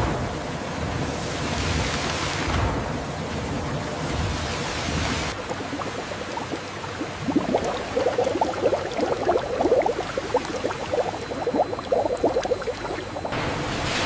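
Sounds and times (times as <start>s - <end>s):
liquid bubbling at a boil: 3.2s - 13.4s.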